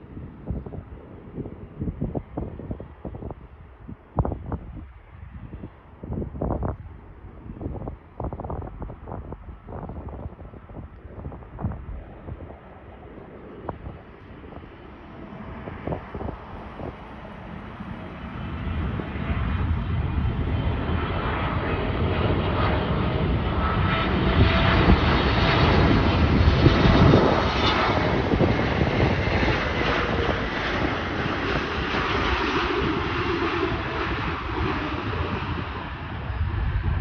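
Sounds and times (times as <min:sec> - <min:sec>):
jet engines running at high power: 0:07.6 - 0:37.0.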